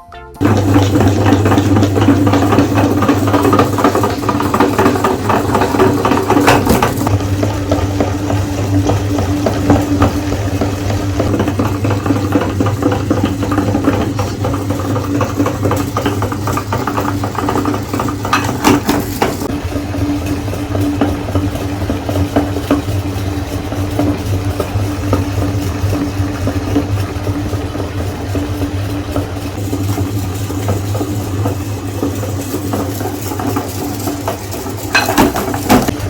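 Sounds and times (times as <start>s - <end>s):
crackling and rattling of grinding: 0.4s - 36.0s
meat grinder motor hum: 0.4s - 36.0s.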